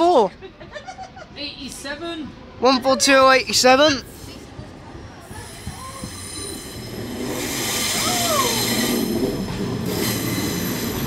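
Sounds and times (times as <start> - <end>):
train wheels squealing: 4.0 - 11.0.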